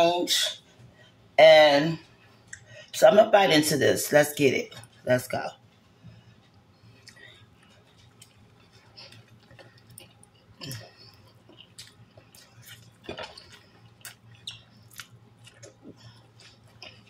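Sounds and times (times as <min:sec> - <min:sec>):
person chewing food: 0:05.6 - 0:17.0.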